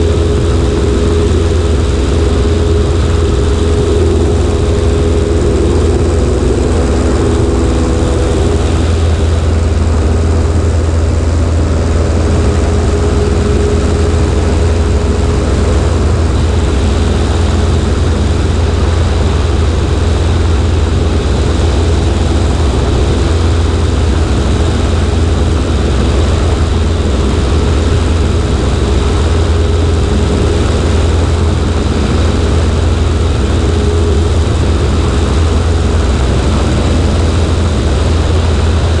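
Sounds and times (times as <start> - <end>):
air rushing over microphone: 0.0 - 39.0
airplane engine and propeller drone: 0.0 - 39.0.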